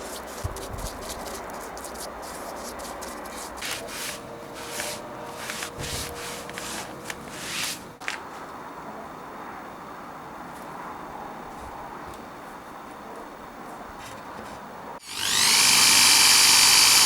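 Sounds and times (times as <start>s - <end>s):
hand rubbing over wood: 0.0s - 8.2s.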